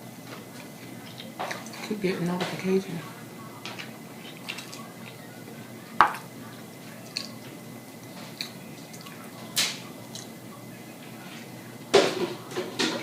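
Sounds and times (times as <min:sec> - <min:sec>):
wet mouth eating sounds: 0:03.8 - 0:05.2, 0:08.2 - 0:09.2.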